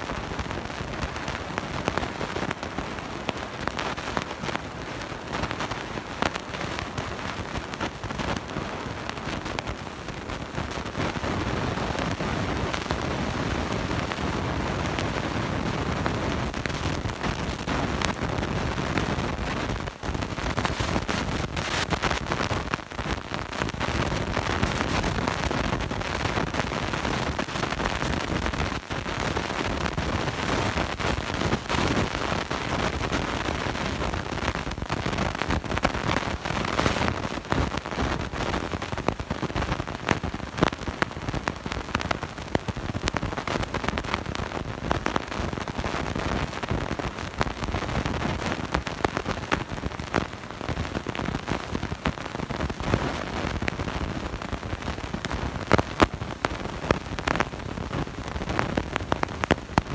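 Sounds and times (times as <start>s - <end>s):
dense recording hiss: 0.0s - 59.9s.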